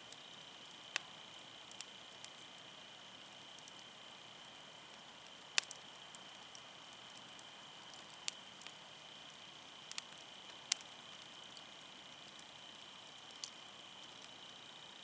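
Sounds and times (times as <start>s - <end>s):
faint steady hiss: 0.0s - 15.0s
firewood crackling and popping: 0.1s - 14.7s.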